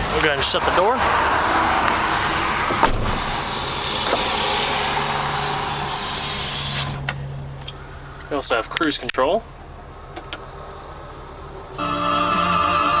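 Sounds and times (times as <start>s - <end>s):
cab door shutting: 2.7s - 3.3s.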